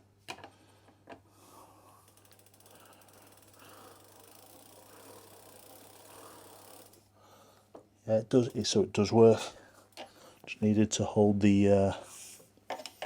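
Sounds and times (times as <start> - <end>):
bicycle freewheel ratchet clicking: 2.0 - 7.1.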